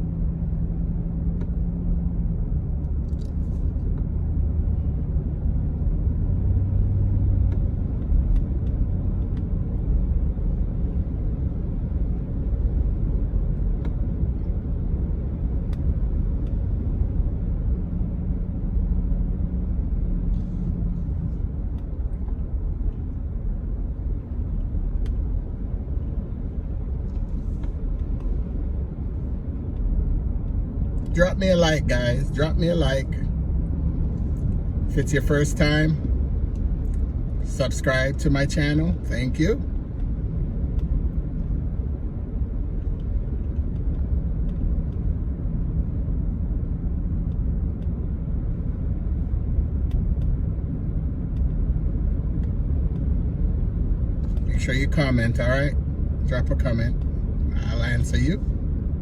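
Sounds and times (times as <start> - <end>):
vehicle road and engine rumble: 0.0 - 59.0
faint small clicks: 7.5 - 9.5, 51.3 - 51.6.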